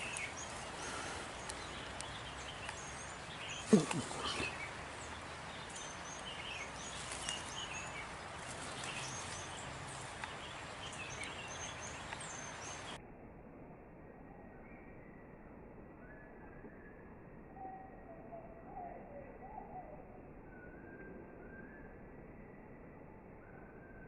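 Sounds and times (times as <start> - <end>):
birds chirping: 0.0 - 13.0
steady outdoor hiss: 0.0 - 24.0.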